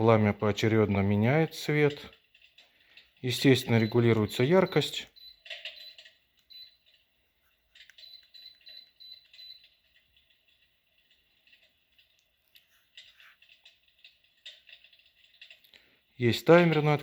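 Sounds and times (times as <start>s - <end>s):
short high beeps: 3.6s - 6.8s, 8.0s - 9.8s.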